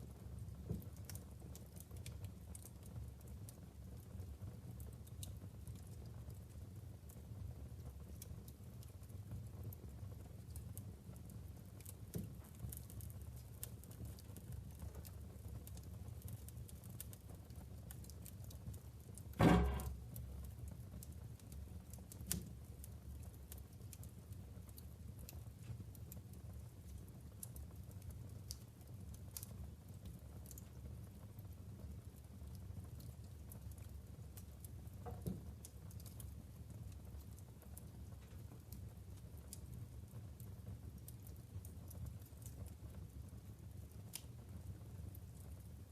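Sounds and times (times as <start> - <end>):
logs burning in a fireplace: 0.0 - 45.9
loud pop from fire: 19.3 - 20.3.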